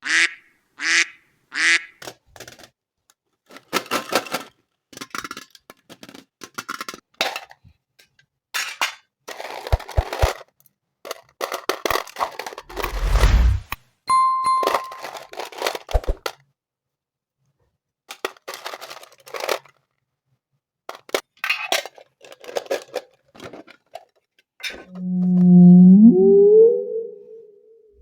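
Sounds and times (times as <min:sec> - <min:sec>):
deep rumble: 0:12.7 - 0:13.7
steady beep: 0:13.2 - 0:15.1, 0:24.9 - 0:27.4.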